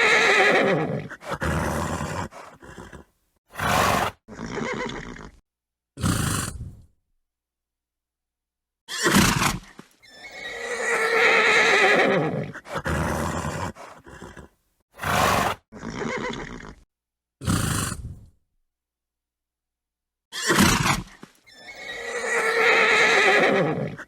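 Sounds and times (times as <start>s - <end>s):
horse snorting: 0.0s - 5.4s, 6.0s - 6.9s, 9.0s - 16.8s, 17.4s - 18.4s
horse whinnying: 0.0s - 5.4s, 8.9s - 16.8s, 20.3s - 24.0s.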